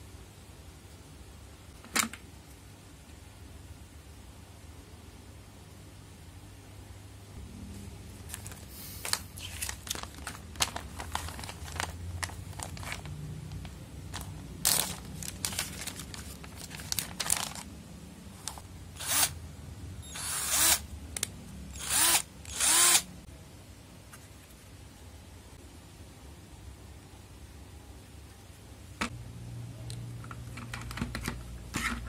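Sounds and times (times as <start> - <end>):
electric drill whirring: 19.0 - 19.4, 20.0 - 20.8, 21.7 - 23.1.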